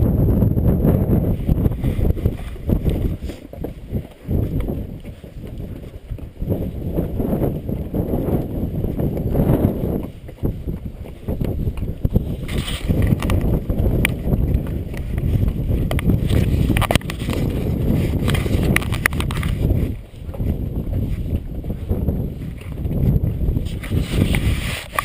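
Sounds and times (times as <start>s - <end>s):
hooves clip-clopping on rock: 0.0s - 25.0s
wind buffeting microphone: 0.0s - 25.0s.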